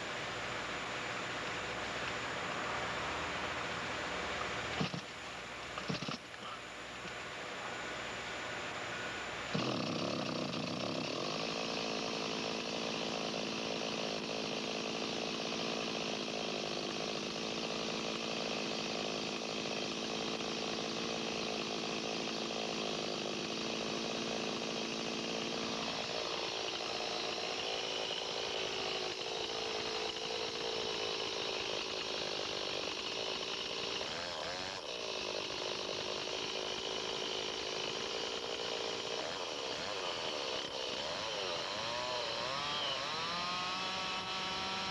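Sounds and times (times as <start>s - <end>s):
chainsaw cutting a log: 0.0s - 44.9s.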